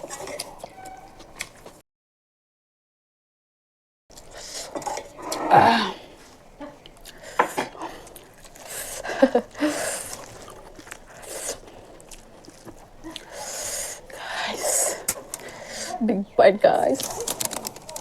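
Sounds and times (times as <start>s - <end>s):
person chewing with mouth smacks: 0.0s - 1.8s, 6.2s - 16.0s.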